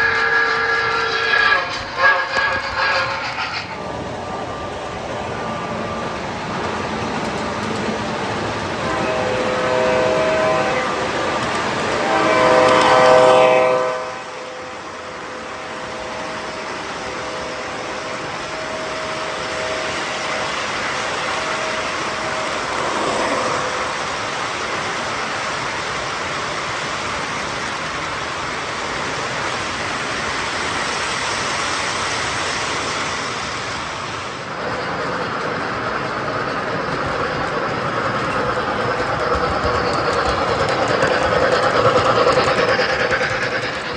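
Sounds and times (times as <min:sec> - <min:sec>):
model locomotive horn blowing: 0:00.0 - 0:03.3, 0:08.8 - 0:20.2
train running noise: 0:00.0 - 0:43.9.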